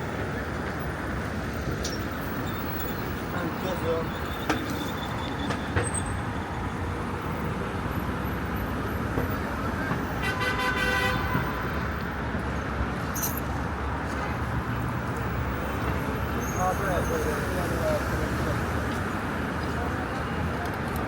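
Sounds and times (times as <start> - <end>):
city street traffic: 0.0 - 21.0
vehicle horn: 10.2 - 11.8.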